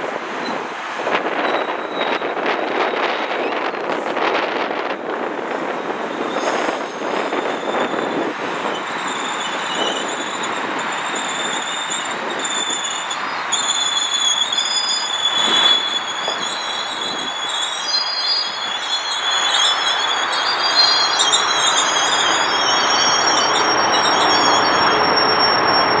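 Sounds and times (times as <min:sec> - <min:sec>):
train cars rumbling past: 0:00.0 - 0:26.0
high wavering squeal: 0:01.3 - 0:04.2, 0:05.5 - 0:26.0.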